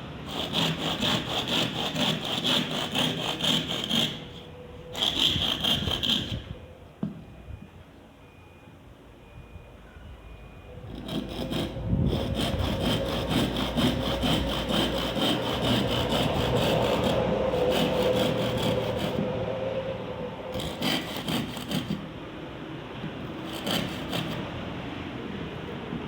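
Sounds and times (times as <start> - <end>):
saw cutting through bamboo: 0.2 - 6.4, 10.9 - 19.4, 20.5 - 22.1, 23.3 - 24.4.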